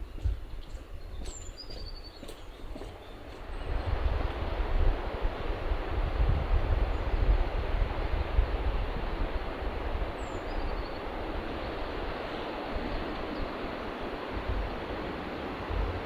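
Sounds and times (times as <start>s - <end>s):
wind buffeting microphone: 0.0s - 16.0s
steady rain hiss: 3.7s - 16.0s.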